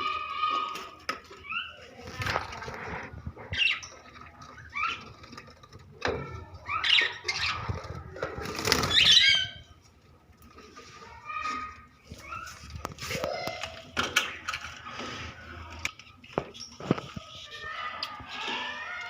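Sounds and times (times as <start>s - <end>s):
wings flapping: 7.4s - 9.4s.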